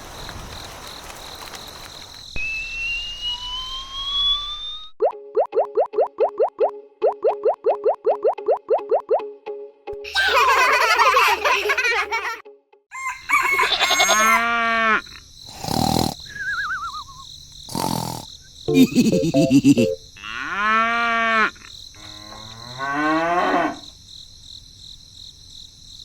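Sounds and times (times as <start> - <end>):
brief wavering tone: 2.4 - 5.0
short hissing bursts: 15.5 - 16.3
cow mooing: 20.2 - 23.9.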